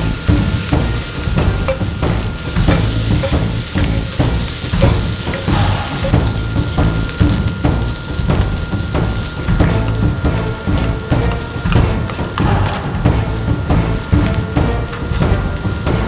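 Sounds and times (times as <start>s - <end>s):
rice sizzling in a hot pan: 0.0s - 16.0s
spatula scraping a pan: 0.3s - 8.2s.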